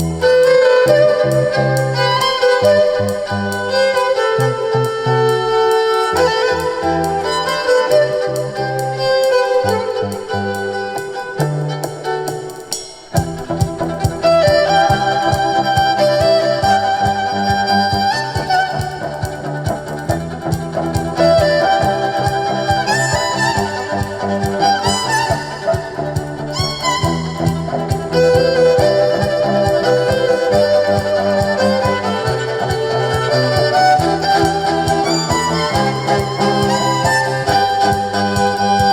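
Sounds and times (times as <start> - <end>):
live band playing instrumental: 0.1 - 38.9.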